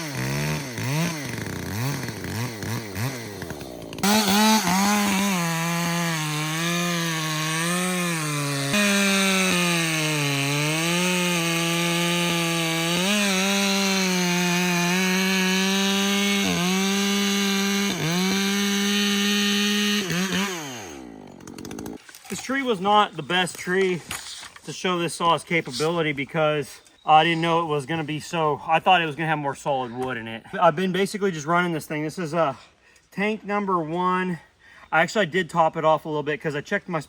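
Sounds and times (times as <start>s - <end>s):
chainsaw cutting wood: 0.0s - 22.4s.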